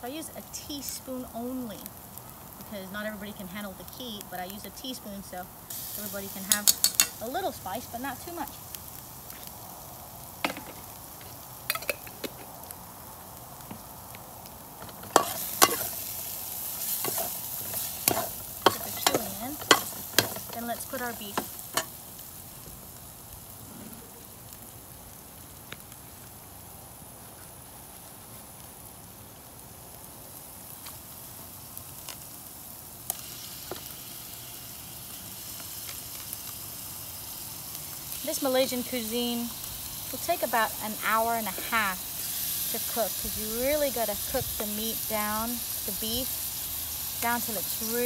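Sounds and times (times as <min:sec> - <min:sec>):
onions frying in oil: 0:00.0 - 0:48.0
paste sizzling in a wok: 0:00.0 - 0:48.0
metal spatula scraping a wok: 0:14.9 - 0:16.0, 0:16.8 - 0:20.6.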